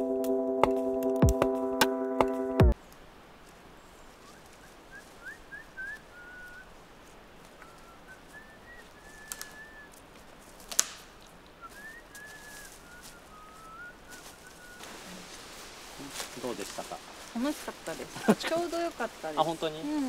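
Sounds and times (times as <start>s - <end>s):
bird whistling high notes: 4.2s - 6.6s, 11.6s - 14.9s
sharp clicks: 10.7s - 11.1s.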